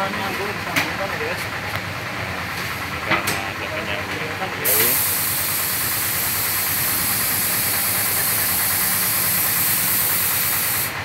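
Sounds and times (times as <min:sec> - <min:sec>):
paint spray gun hissing: 0:04.6 - 0:11.0.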